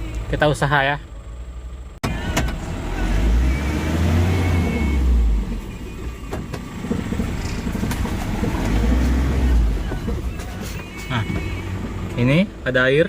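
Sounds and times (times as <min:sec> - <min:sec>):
diesel engine revving hard: 0:02.0 - 0:10.4.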